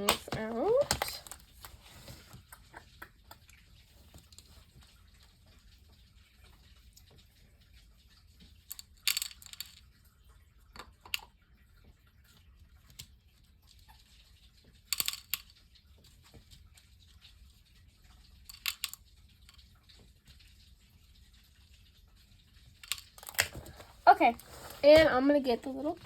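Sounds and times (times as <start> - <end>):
small supplies clattering: 0.0 - 2.3, 22.9 - 26.0.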